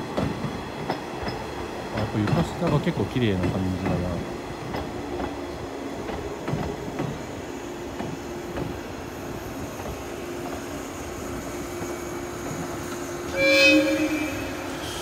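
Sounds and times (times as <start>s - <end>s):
train wheels clicking over rail joints: 0.0s - 10.8s
electric train hum: 0.0s - 15.0s.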